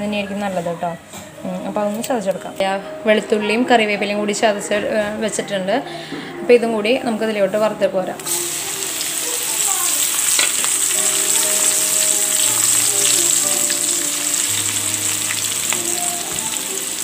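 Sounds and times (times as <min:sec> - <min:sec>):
frying in hot oil sizzling: 0:08.2 - 0:17.0
small crackling pops: 0:10.0 - 0:11.0.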